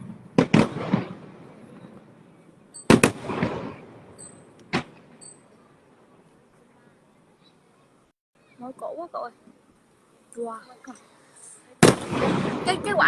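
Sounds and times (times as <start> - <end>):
firework shells bursting: 0.0 - 2.1, 2.7 - 5.6.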